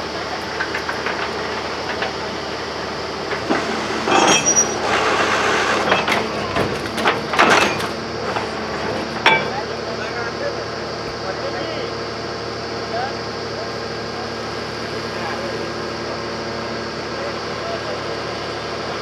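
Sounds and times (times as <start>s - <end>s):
drilling machine motor running: 0.0s - 19.0s
metallic clanks and rattles: 0.3s - 9.8s
short metallic squeal: 3.9s - 6.4s.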